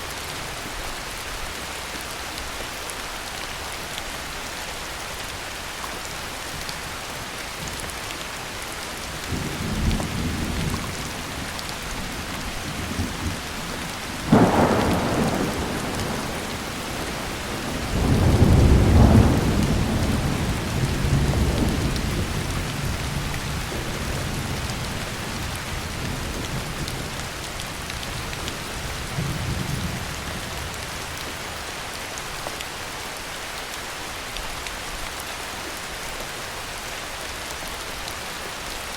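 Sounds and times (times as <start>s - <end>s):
heavy rain falling: 0.0s - 38.9s
thunder rumbling: 14.1s - 27.1s
sharp thunder clap: 14.3s - 21.8s.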